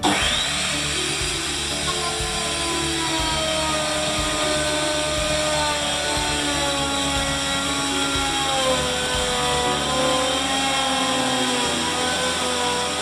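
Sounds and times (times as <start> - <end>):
power tool whining: 0.0 - 13.0.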